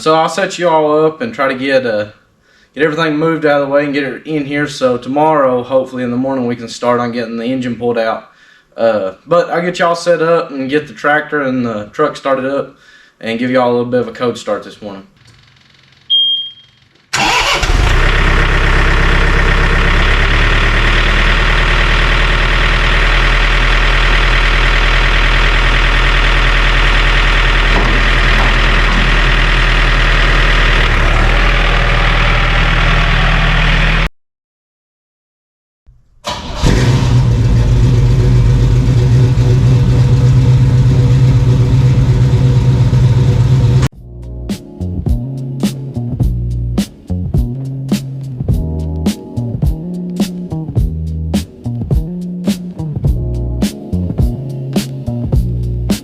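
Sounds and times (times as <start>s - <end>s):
short high beep: 16.1s - 16.8s
tractor engine starting: 17.1s - 34.1s, 36.2s - 43.9s
truck engine starting: 17.1s - 34.1s, 36.2s - 43.9s.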